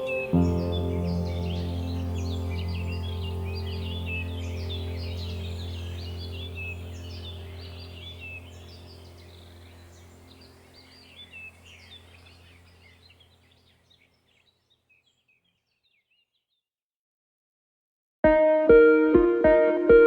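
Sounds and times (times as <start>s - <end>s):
low steady hum: 0.0s - 13.6s
small birds chirping: 0.0s - 16.6s.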